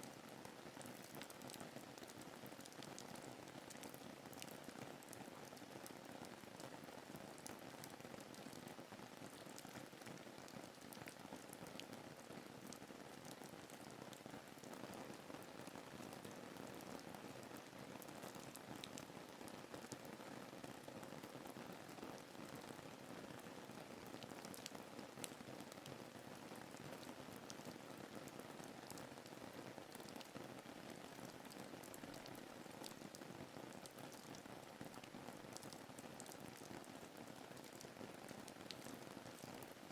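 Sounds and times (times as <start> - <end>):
rain pattering: 0.0 - 39.9
rain drop ticks: 0.9 - 1.6, 33.8 - 36.4, 37.6 - 39.5
raindrops ticking: 33.8 - 36.4.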